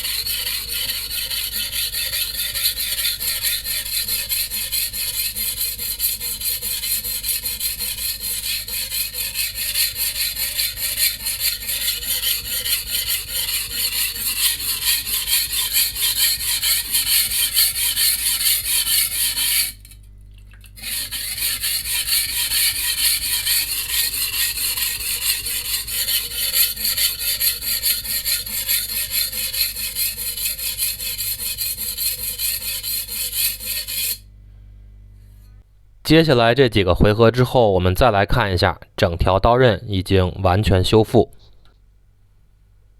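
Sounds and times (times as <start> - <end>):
knife scraping on whetstone: 0.0 - 20.0, 20.8 - 34.2.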